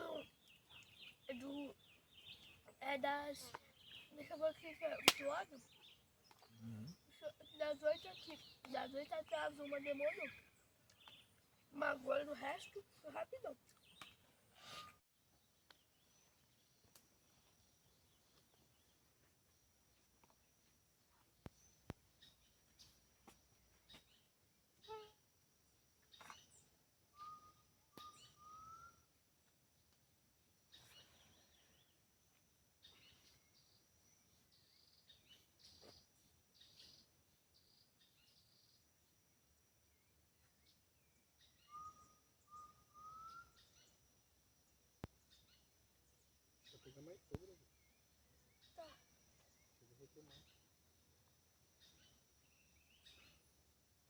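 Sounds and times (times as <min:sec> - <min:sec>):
bird chirps: 0:00.0 - 0:29.9, 0:39.9 - 0:44.2, 0:45.0 - 0:53.8
bird whistling short notes: 0:27.2 - 0:29.0, 0:41.6 - 0:43.6.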